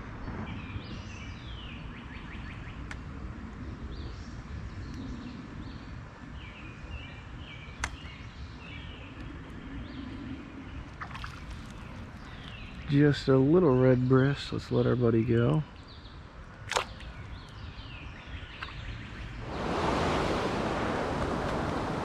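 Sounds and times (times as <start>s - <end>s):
low outdoor rumble: 0.0s - 22.0s
songbird singing: 0.2s - 22.0s.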